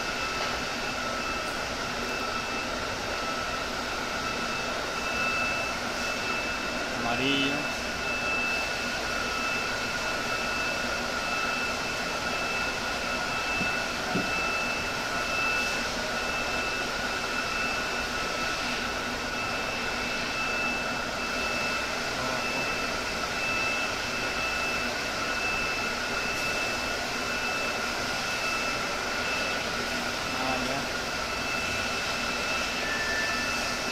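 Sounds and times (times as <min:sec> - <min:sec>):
electric fan motor whirring: 0:00.0 - 0:33.9.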